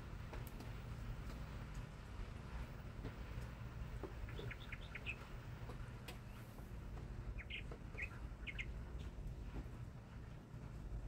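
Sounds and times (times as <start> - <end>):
low background rumble: 0.0 - 11.0
songbird chirping: 3.4 - 9.6.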